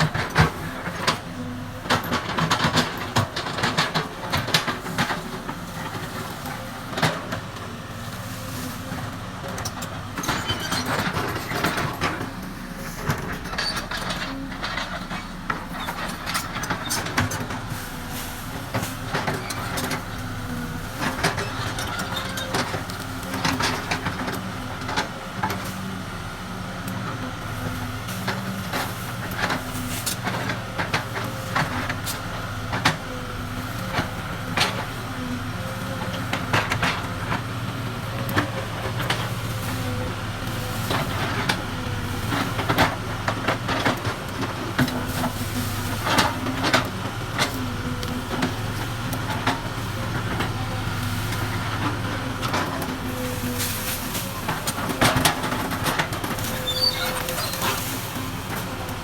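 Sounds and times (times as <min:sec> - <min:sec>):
excavator engine humming: 0:00.0 - 0:59.0.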